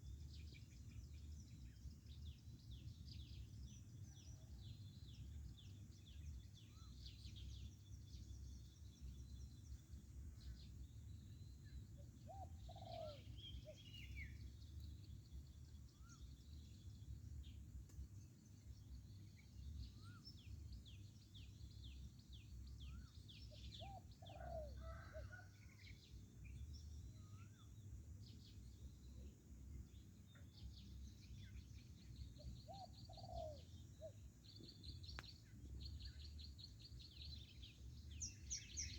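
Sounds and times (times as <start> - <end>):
small birds chirping: 0.0 - 38.9
dove cooing: 12.3 - 13.8, 32.7 - 34.1.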